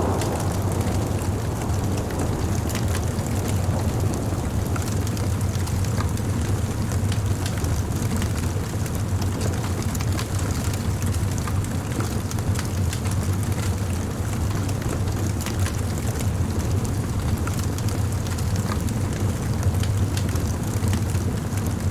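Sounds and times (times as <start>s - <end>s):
bonfire rumbling: 0.0s - 21.9s
fire crackling and popping: 0.0s - 21.9s.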